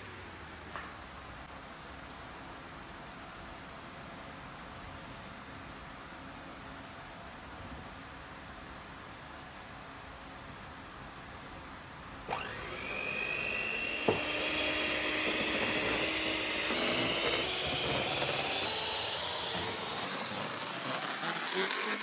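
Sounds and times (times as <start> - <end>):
electric motor whine: 12.3 - 22.0.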